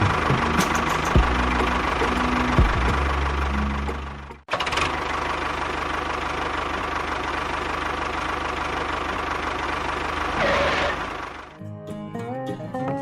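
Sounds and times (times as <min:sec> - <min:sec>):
tractor engine idling: 0:00.0 - 0:11.6.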